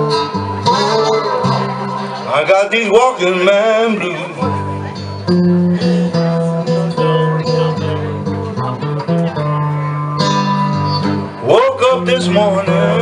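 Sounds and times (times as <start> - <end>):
blues guitars: 0.0 - 13.0.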